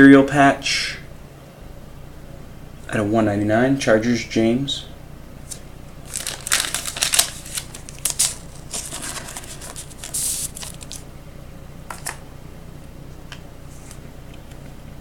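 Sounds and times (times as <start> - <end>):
trading cards rustling and clicking: 5.5 - 11.0.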